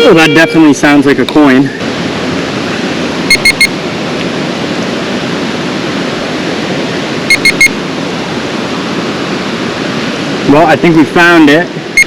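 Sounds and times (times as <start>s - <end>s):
metal detector short high beeps: 0.0s - 0.9s, 3.3s - 3.7s, 7.3s - 7.8s
flowing water rushing: 0.0s - 12.0s.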